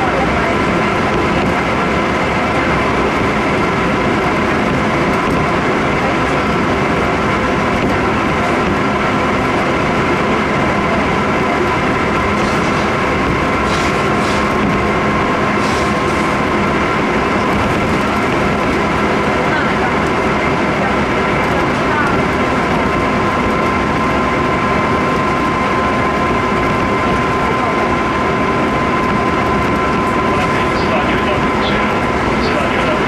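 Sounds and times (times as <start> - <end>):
steady whining tones: 0.0 - 33.0
train wheels rumbling on rail: 0.0 - 33.0.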